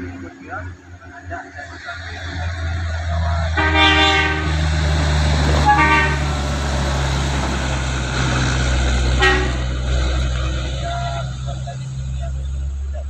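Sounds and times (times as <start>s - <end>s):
heavy truck engine droning: 0.0s - 13.0s
vehicle horn blasts: 3.6s - 4.9s, 5.6s - 6.4s, 9.2s - 9.7s.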